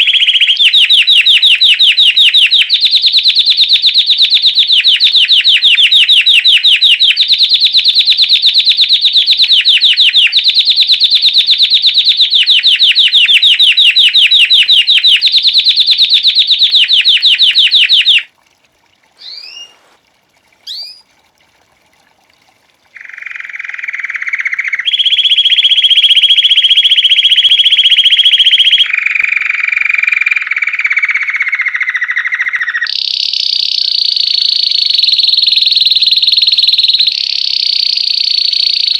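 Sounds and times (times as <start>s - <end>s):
canary singing trills: 0.0s - 18.3s, 19.2s - 20.0s, 20.6s - 21.1s, 23.0s - 37.2s
short rising chirps: 19.2s - 20.0s, 20.6s - 21.1s.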